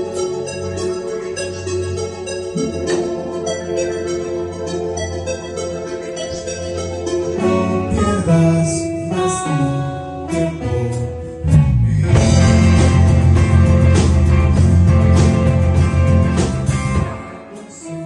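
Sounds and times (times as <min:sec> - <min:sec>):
sustained instrumental music: 0:00.0 - 0:18.0
low bass part: 0:07.1 - 0:17.2.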